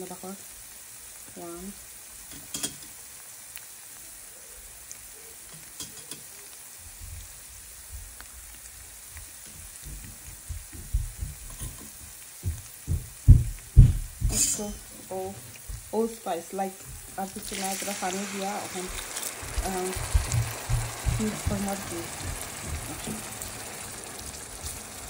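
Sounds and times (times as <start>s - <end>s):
paste sizzling in oil: 0.0s - 25.0s
dull knocks: 9.8s - 11.6s, 12.4s - 14.3s, 20.0s - 21.7s
wooden spoon stirring and scraping: 17.0s - 23.2s.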